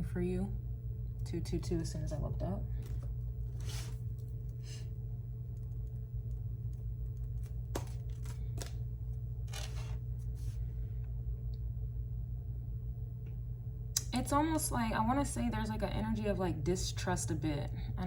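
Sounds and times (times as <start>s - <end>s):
steady low hum: 0.0s - 18.0s
cards rustling and clicking: 2.8s - 4.3s, 7.2s - 8.8s, 9.5s - 10.6s.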